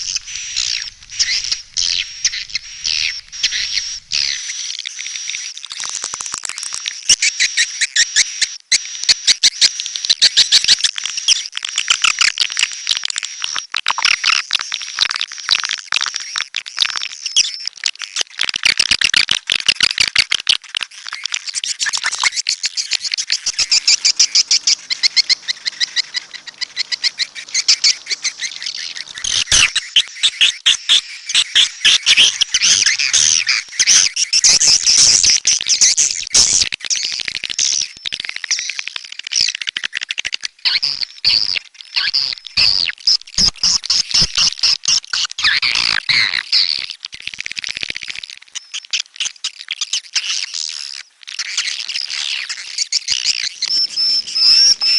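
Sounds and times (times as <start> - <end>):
swiftlets twittering chirps: 0.0 - 4.8, 22.3 - 36.2, 53.1 - 54.9.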